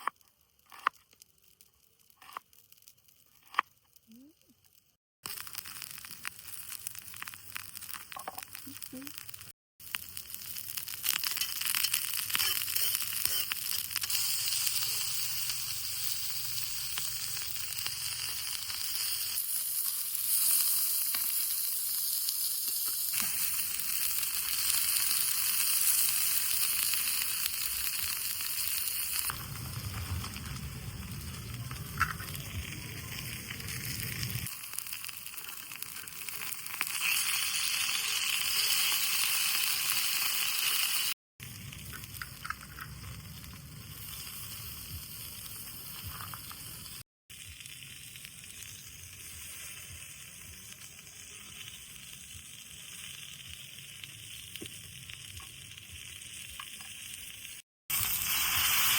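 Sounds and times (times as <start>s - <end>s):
food sizzling in a pan: 1.3s - 58.9s
low rumble: 29.3s - 34.5s.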